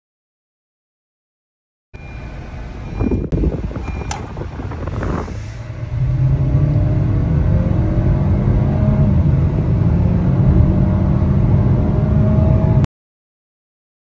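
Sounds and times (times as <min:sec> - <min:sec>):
car engine droning: 0:02.0 - 0:12.9
road and tyre rumble: 0:02.0 - 0:12.9.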